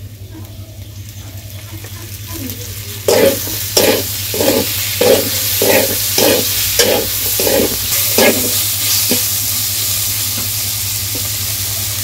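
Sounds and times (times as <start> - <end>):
food sizzling in pan: 0.8 - 12.0
spatula scraping pan: 3.1 - 9.3.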